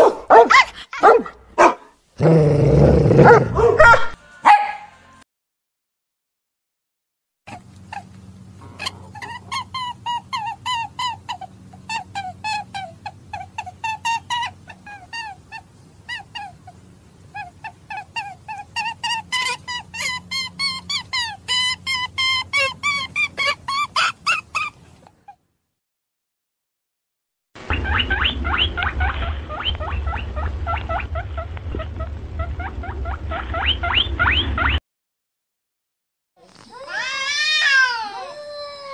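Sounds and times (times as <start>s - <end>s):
steady low hum: 7.5s - 23.4s, 27.6s - 34.8s
low steady hum: 27.6s - 34.8s.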